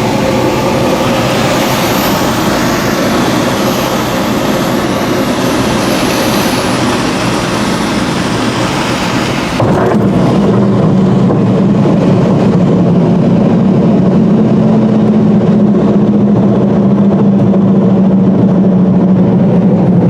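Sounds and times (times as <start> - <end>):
loud rushing air in cockpit: 0.0 - 20.0.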